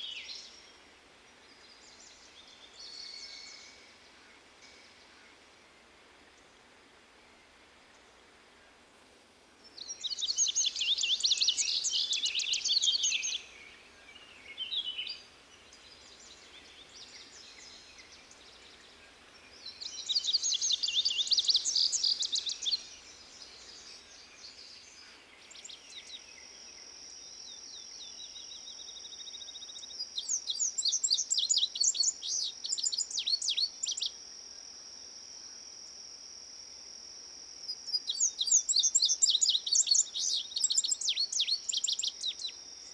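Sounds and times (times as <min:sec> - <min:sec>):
songbird warbling: 0:09.8 - 0:15.3, 0:19.6 - 0:24.2, 0:37.7 - 0:42.9.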